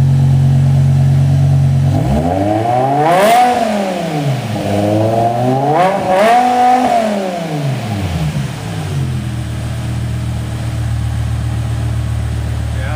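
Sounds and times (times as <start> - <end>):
car engine revving and idling: 0.0 - 12.9.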